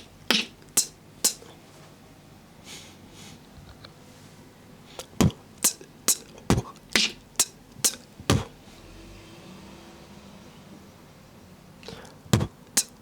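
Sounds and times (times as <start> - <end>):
beatboxing kick and snare: 0.0 - 1.6, 5.0 - 8.6, 11.8 - 13.0.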